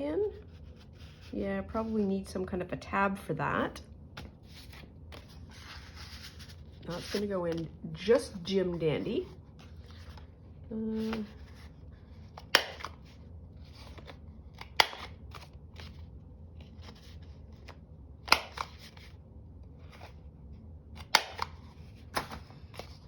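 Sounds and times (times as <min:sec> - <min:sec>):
paper rustling: 0:04.2 - 0:10.3, 0:21.0 - 0:23.0
cutter snapping through card: 0:12.4 - 0:13.0, 0:14.6 - 0:15.2, 0:18.3 - 0:18.7, 0:21.0 - 0:21.6.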